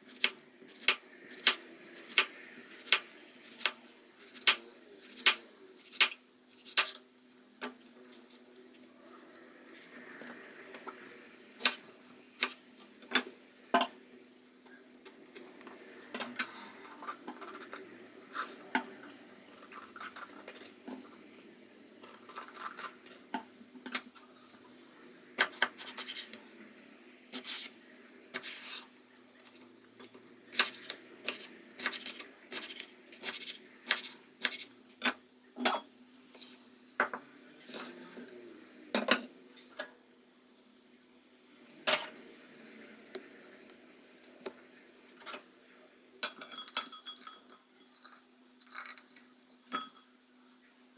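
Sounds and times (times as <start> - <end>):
dishes clinking and knocking: 46.2 - 50.1.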